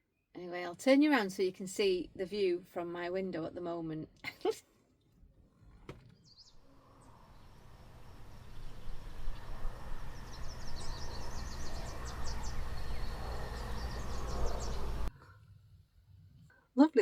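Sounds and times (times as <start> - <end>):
small birds chirping: 6.1 - 15.1
low rumble: 6.6 - 15.1.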